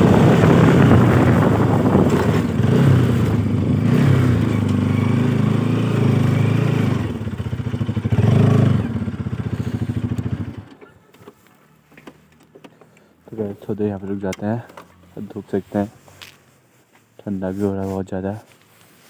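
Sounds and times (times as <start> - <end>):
motorcycle engine running: 0.0 - 10.8.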